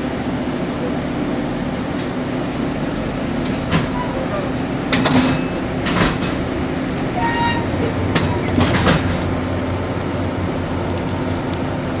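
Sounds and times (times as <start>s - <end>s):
stationary train humming: 0.0s - 12.0s
train wheels clacking over rail joints: 3.4s - 6.6s, 7.2s - 9.4s
high wheel squeal: 7.2s - 8.6s.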